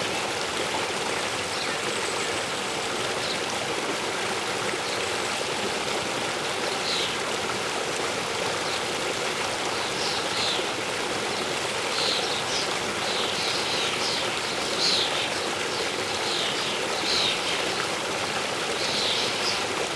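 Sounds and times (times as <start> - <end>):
small birds chirping: 11.9 - 17.8, 18.8 - 19.7.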